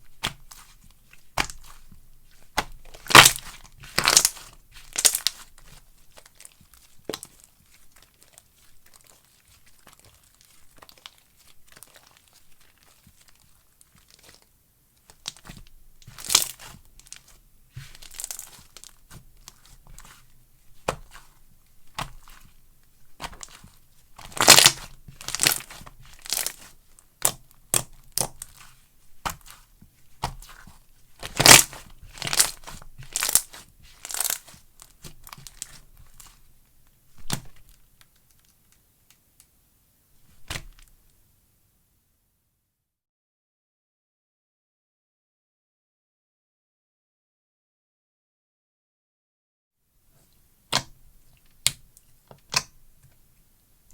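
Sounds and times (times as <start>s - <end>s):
slime squished by hand: 0.1s - 14.4s, 15.1s - 36.4s.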